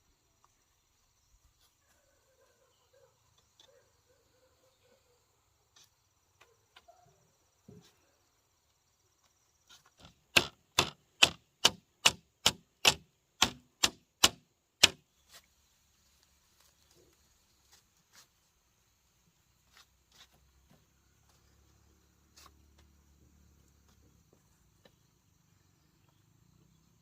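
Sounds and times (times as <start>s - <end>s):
sharp knocks: 10.0s - 15.0s.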